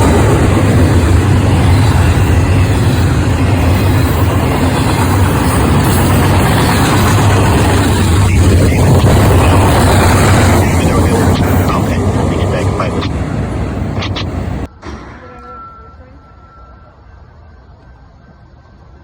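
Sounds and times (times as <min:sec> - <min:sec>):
diesel engine hum: 0:00.0 - 0:14.7
train rumbling: 0:00.0 - 0:19.0.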